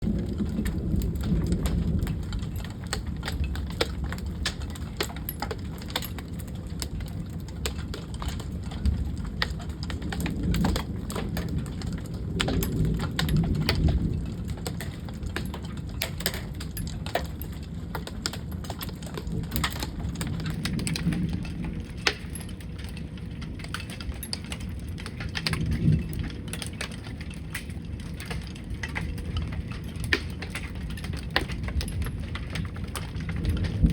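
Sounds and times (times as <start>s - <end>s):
rain pattering: 0.0s - 33.9s.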